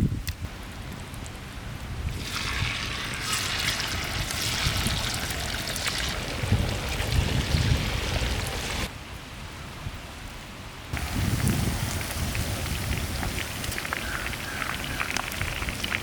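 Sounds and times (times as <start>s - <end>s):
chicken deep-frying in oil: 2.1s - 8.9s, 11.0s - 16.0s.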